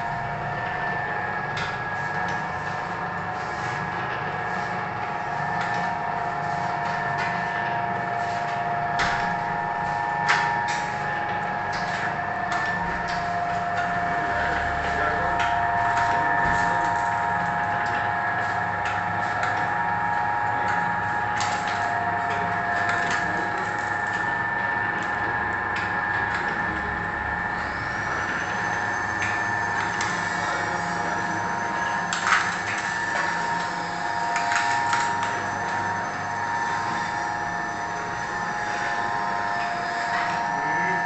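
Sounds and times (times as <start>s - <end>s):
packing machine humming: 0.0s - 41.0s
thin high whine: 26.0s - 41.0s.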